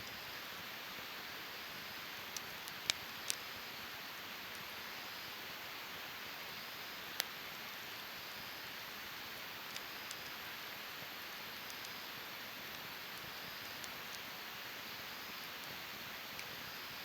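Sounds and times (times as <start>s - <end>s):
campfire hissing: 0.0s - 17.0s
campfire pops: 12.6s - 14.3s.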